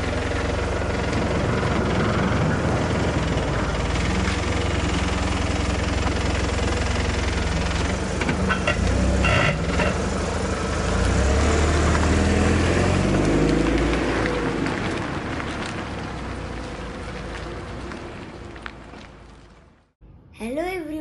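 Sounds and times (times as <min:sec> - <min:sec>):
vehicle engine idling: 0:00.0 - 0:13.3.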